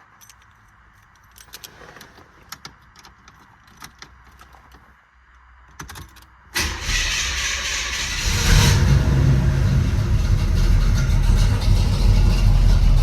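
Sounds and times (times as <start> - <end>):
keys jingling: 0.1 - 4.8
loud vee eight engine starting: 6.6 - 13.0.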